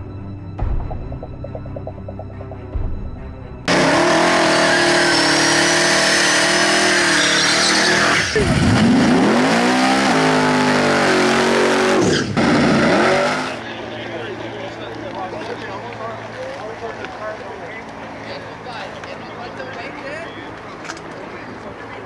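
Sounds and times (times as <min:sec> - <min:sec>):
car engine revving high: 0:03.7 - 0:13.6
tyres squealing: 0:04.4 - 0:13.6.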